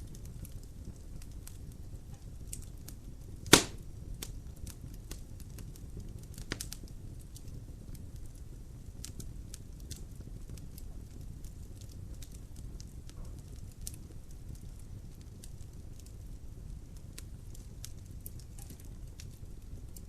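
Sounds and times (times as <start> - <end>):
fire rumbling: 0.0 - 20.0
small crackles: 0.0 - 20.0
loud pop of burning log: 3.4 - 4.3, 6.3 - 6.8.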